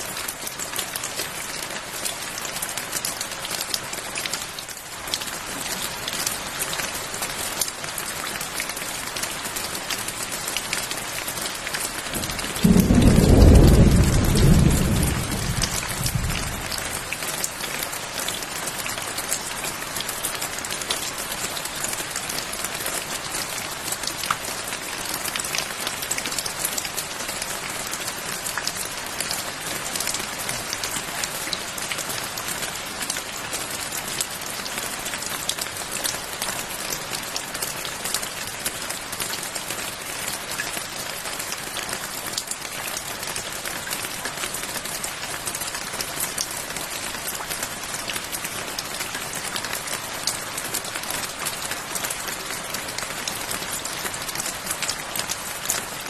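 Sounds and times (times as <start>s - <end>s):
steady rain falling: 0.0s - 56.0s
thunder rumbling: 12.2s - 17.0s.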